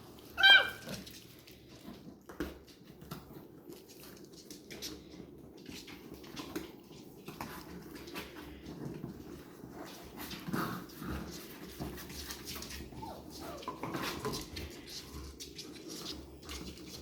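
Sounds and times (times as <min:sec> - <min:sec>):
puppies moving and chewing: 0:00.0 - 0:17.0
puppy yelping: 0:00.2 - 0:01.0.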